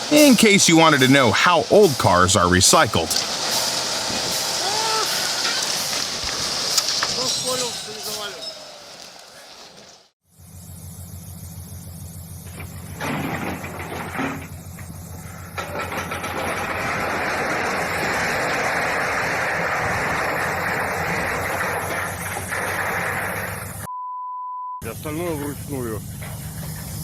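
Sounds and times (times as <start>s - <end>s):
heavy machinery engine running: 10.4s - 23.9s.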